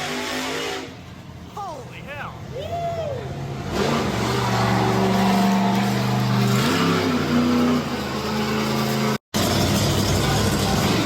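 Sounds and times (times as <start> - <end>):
monster truck engine revving: 0.0 - 1.0, 3.2 - 11.0.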